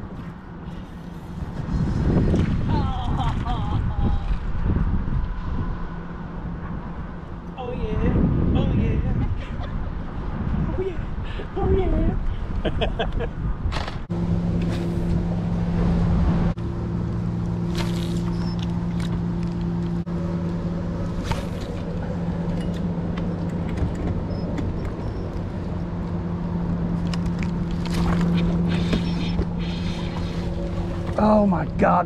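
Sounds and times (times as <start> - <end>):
low wind rumble: 0.0 - 32.0
boat motor humming: 14.1 - 32.0.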